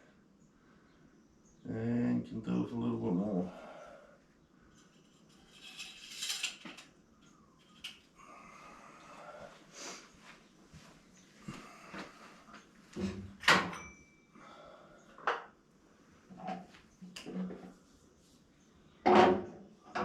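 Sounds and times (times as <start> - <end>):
objects knocking and rattling: 4.8 - 7.0.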